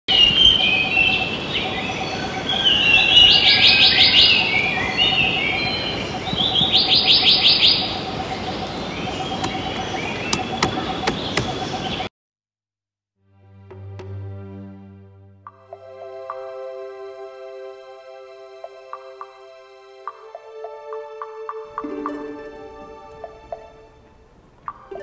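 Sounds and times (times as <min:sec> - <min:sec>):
rapid bird trills: 0:00.1 - 0:12.1
small birds chirping: 0:00.1 - 0:12.1.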